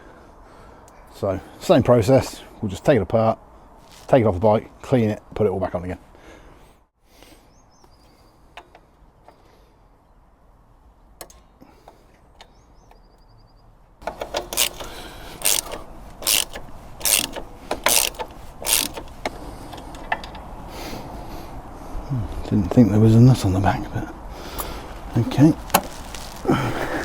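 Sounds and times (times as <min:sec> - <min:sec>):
hand tool sharp strokes: 0:14.3 - 0:19.2.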